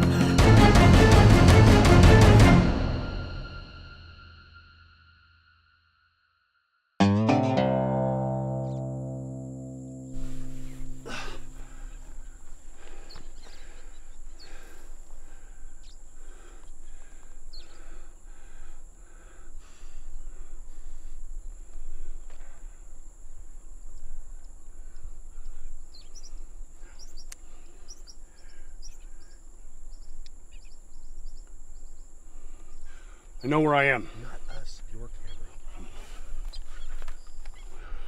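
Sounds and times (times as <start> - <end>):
high insect drone: 9.0 - 38.0
birds chirping: 10.2 - 38.0.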